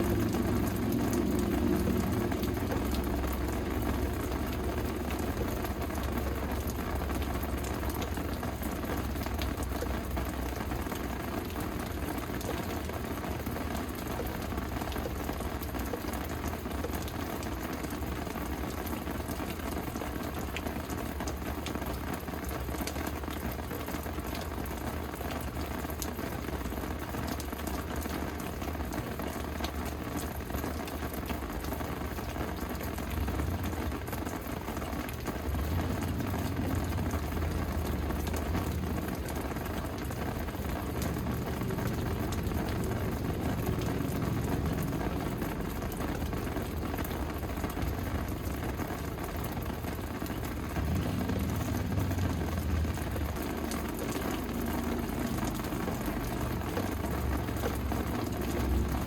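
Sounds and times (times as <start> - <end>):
low rumble: 0.0 - 9.5, 35.3 - 59.0
steady rain falling: 0.0 - 59.0.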